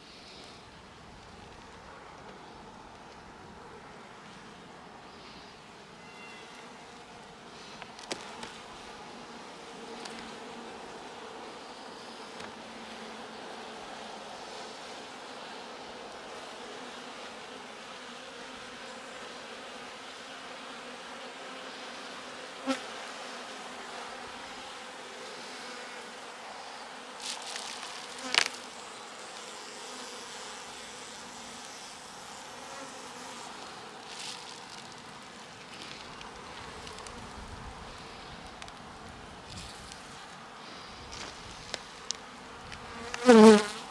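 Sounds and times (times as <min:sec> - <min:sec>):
bees buzzing: 0:23.7 - 0:43.9.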